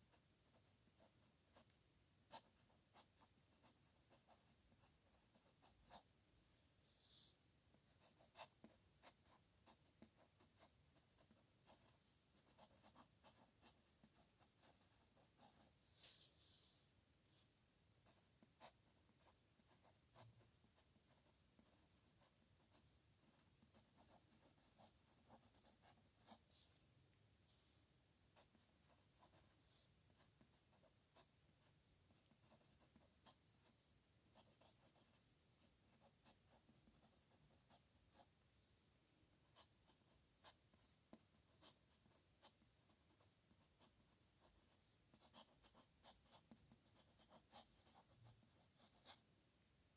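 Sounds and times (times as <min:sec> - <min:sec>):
pen scratching on paper: 0:00.1 - 0:16.9, 0:18.0 - 0:26.9, 0:28.4 - 0:38.8, 0:39.4 - 0:49.2.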